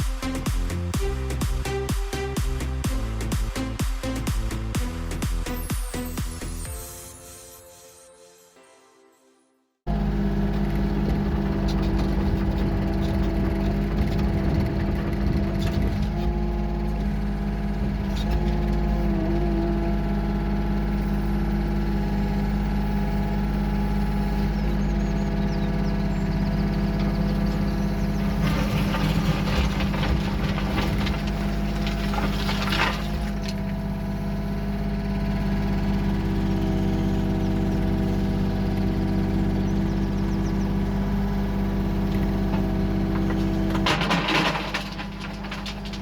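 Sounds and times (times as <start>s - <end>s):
diesel engine running: 0.0s - 6.8s, 9.9s - 46.0s
rattling clattering: 24.8s - 33.7s, 41.7s - 46.0s.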